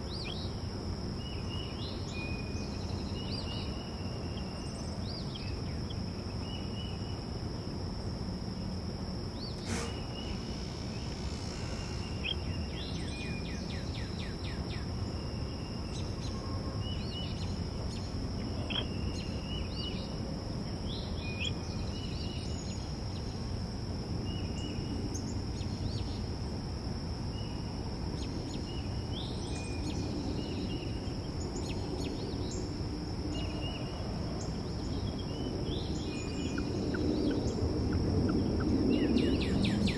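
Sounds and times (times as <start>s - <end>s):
songbirds chirping: 0.0s - 7.5s, 9.4s - 23.4s, 27.3s - 39.9s
high thin whine: 9.6s - 12.6s.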